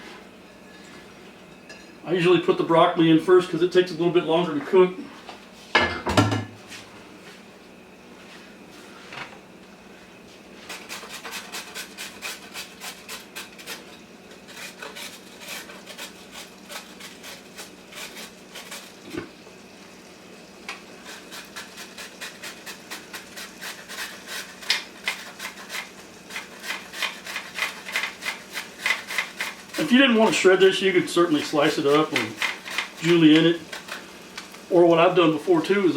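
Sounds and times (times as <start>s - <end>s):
carrot rasping on grater: 10.6s - 19.0s, 21.0s - 34.2s.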